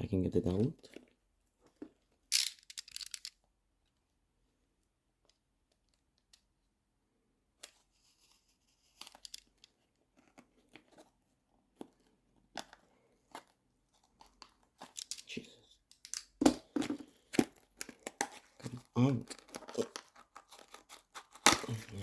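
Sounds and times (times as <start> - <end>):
packaging ripping: 19.3 - 22.0.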